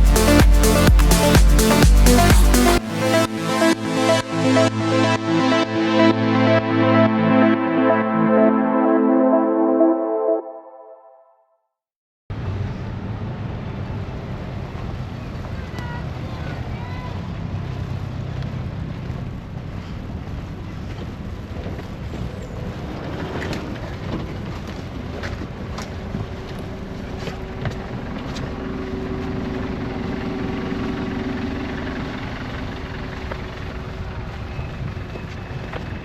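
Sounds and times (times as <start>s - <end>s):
city traffic rumble: 12.3s - 36.0s
wind: 12.3s - 36.0s
vehicle engine hum: 24.9s - 36.0s.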